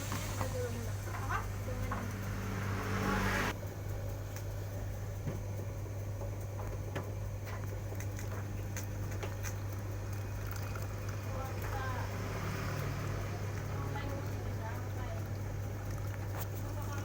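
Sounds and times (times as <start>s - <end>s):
hissing splashing noise: 0.0s - 3.5s.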